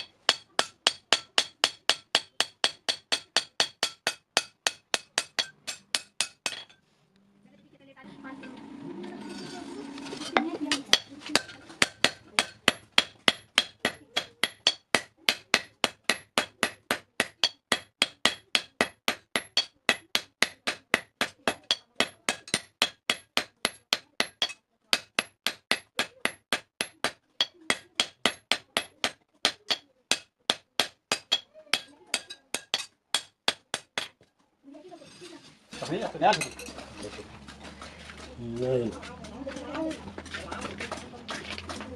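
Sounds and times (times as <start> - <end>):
hammer striking steel on anvil: 0.0 - 6.8, 10.3 - 34.2.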